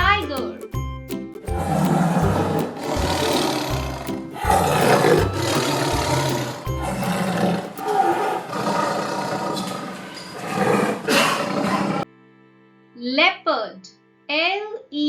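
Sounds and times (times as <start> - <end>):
children's music: 0.0 - 15.0
tiger roaring: 1.5 - 12.0.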